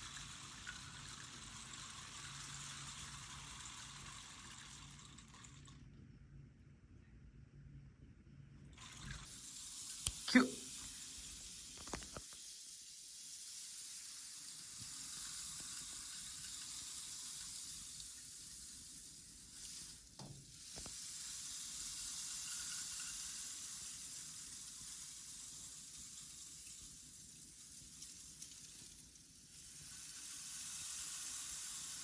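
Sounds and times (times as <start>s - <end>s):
grains rustling hiss: 9.2s - 32.0s.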